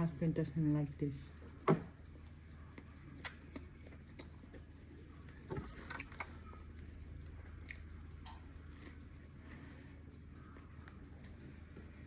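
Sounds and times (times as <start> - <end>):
steady low hum: 0.0 - 12.0
sharp bites and mouth clicks: 3.2 - 4.6.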